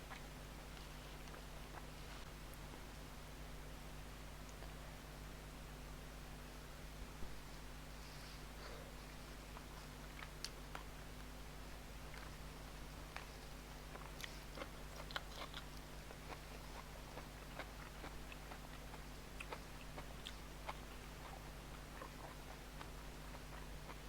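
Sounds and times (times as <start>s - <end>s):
low steady hum: 0.0s - 24.0s
person chewing food: 8.8s - 11.3s, 12.0s - 24.0s.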